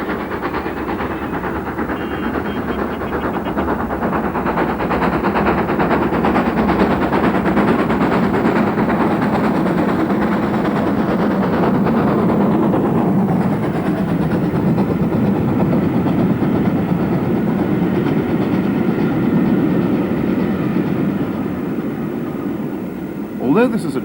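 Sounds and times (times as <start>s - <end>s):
wheels clattering on rails: 0.0s - 22.6s
steam locomotive exhaust beats: 0.0s - 24.0s.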